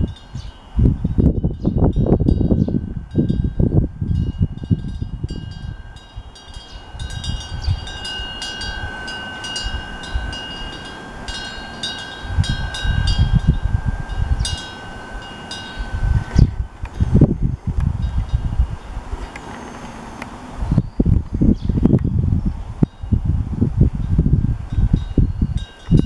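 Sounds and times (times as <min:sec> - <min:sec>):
wind bell ringing: 0:00.0 - 0:19.0, 0:22.8 - 0:23.2, 0:24.0 - 0:26.0
wind rumble on microphone: 0:00.0 - 0:26.0.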